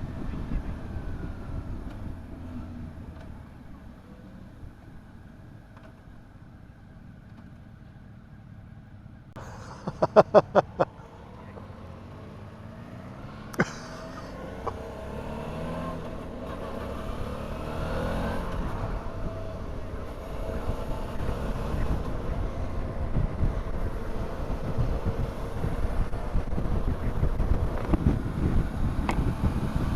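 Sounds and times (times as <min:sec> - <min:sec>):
motorcycle engine accelerating: 0:10.0 - 0:29.9.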